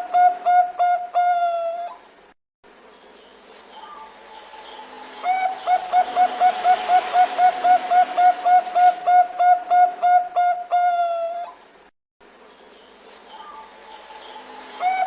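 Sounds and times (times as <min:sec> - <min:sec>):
dove cooing: 0:00.0 - 0:02.0, 0:03.8 - 0:11.6, 0:14.3 - 0:15.0.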